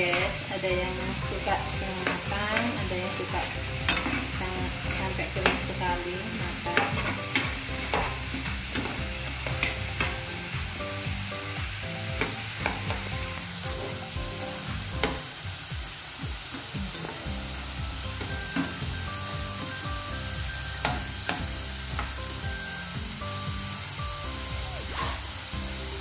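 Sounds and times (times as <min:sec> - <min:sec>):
fries sizzling in hot oil: 0:00.0 - 0:26.0
metal spatula scraping a pan: 0:03.4 - 0:04.4, 0:06.7 - 0:10.2.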